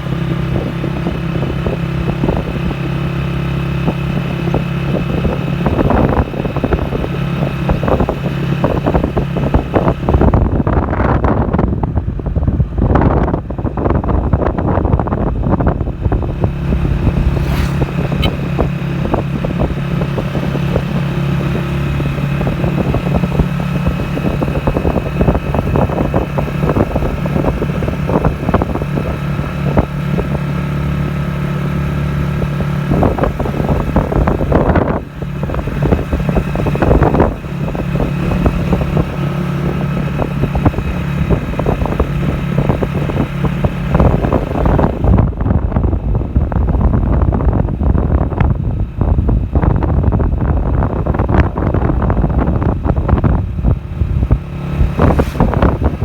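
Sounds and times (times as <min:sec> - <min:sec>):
vehicle engine running: 0:00.0 - 0:56.0
wind buffeting microphone: 0:00.0 - 0:56.0.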